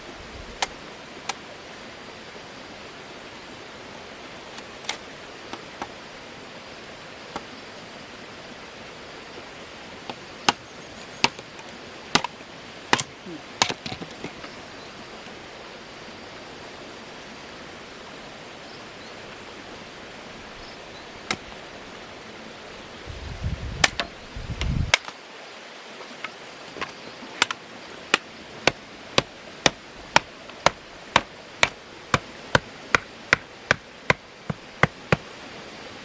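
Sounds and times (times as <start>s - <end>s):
steady hiss: 0.0s - 36.0s
hand tool striking wood: 10.1s - 10.6s, 11.2s - 11.4s, 12.1s - 14.4s, 23.8s - 24.1s, 24.9s - 25.1s, 26.2s - 35.3s.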